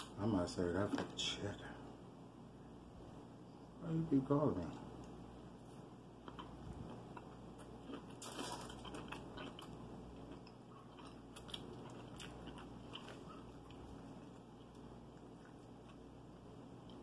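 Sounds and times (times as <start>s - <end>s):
chewing hot dog: 6.2s - 17.0s.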